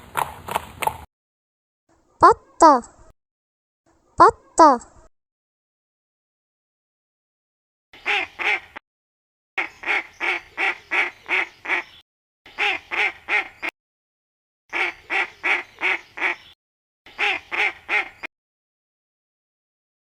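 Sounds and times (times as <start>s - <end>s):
duck quacking: 8.0s - 8.8s, 9.6s - 13.7s, 14.7s - 16.5s, 17.1s - 18.3s.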